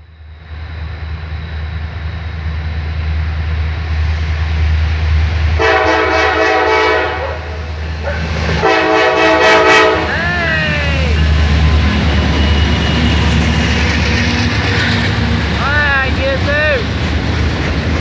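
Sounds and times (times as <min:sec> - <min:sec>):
diesel locomotive engine rumble: 0:00.0 - 0:18.0
train air horn: 0:05.6 - 0:07.7, 0:08.6 - 0:10.2.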